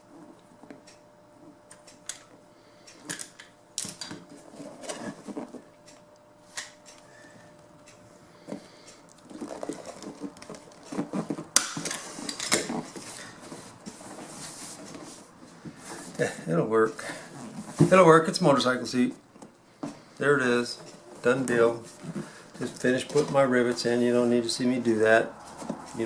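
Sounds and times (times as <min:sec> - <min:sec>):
rustling: 0:19.3 - 0:26.0.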